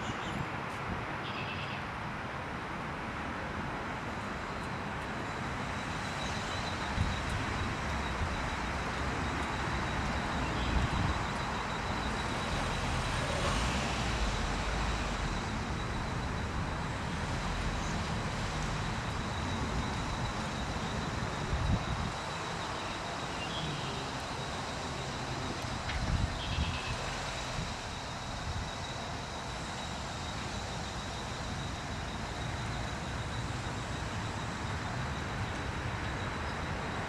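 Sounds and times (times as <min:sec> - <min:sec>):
outdoor background noise: 0:00.0 - 0:37.0
faint high-pitched tone: 0:05.3 - 0:37.0.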